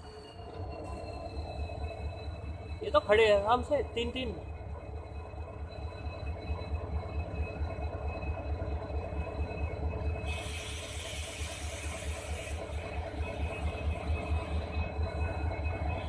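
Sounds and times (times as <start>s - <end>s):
thin steady whine: 0.0s - 16.0s
air hiss: 10.3s - 12.6s.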